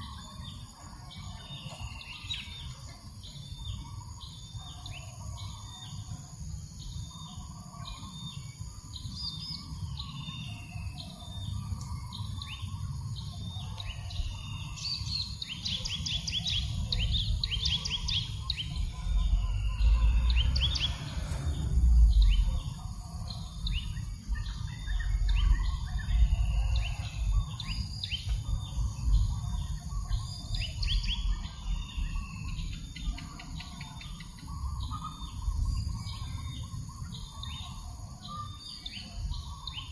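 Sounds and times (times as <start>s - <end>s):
small birds chirping: 0.0s - 39.9s
breeze buffeting microphone: 16.6s - 27.5s.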